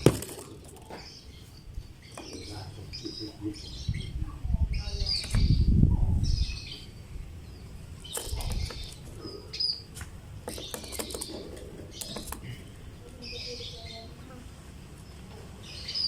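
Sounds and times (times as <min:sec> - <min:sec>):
lovebird chirping: 0:00.9 - 0:14.2, 0:15.0 - 0:16.0.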